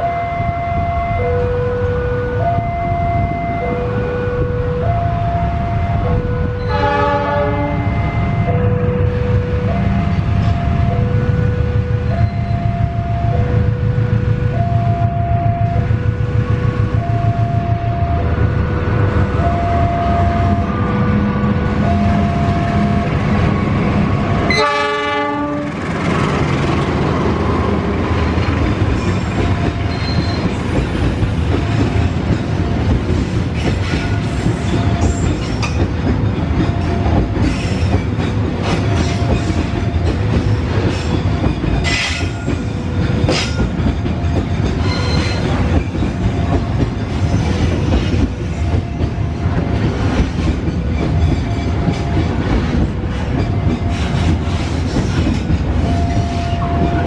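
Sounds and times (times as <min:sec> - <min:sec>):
freight train rumbling past: 0:00.0 - 0:57.0
train horn blast: 0:05.7 - 0:08.5, 0:24.4 - 0:25.9.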